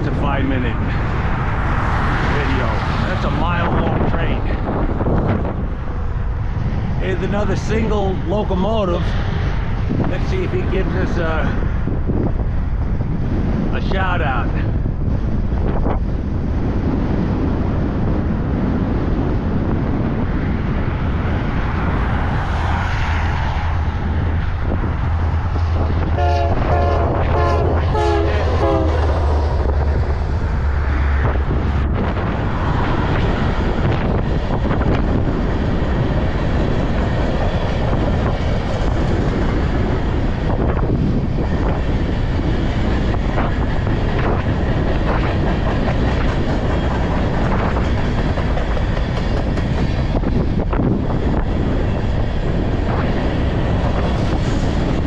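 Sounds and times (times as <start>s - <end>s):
locomotive engine drone: 0.0s - 55.0s
train cars rumbling and clattering: 0.0s - 55.0s
train horn blasts: 26.2s - 29.1s.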